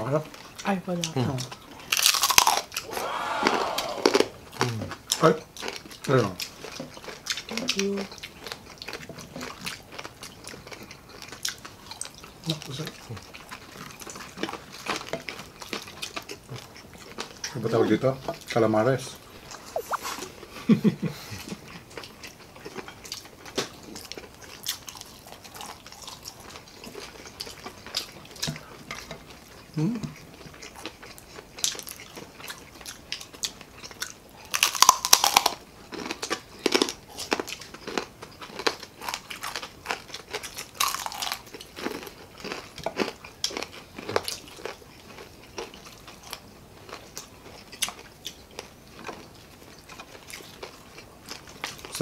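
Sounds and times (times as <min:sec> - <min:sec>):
chewing and crunching fried food: 0:00.0 - 0:52.0.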